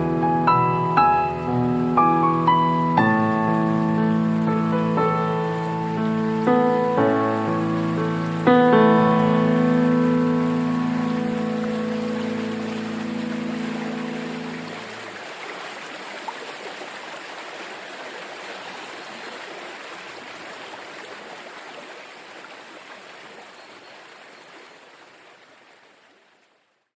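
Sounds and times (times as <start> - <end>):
music chord: 0.0 - 14.9
stream water rushing: 0.0 - 26.8.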